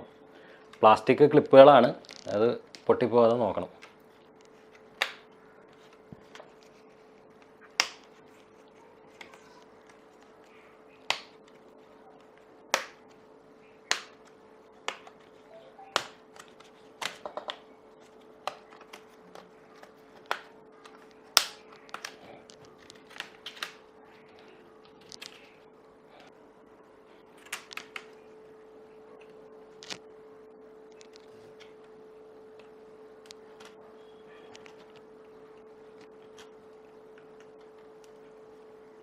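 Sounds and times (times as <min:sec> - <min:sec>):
faint hum: 0:00.0 - 0:39.0.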